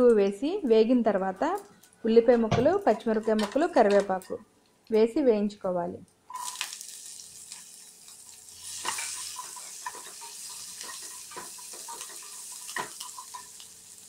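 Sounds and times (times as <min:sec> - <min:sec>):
vegetables sizzling in hot oil: 0:06.3 - 0:14.0.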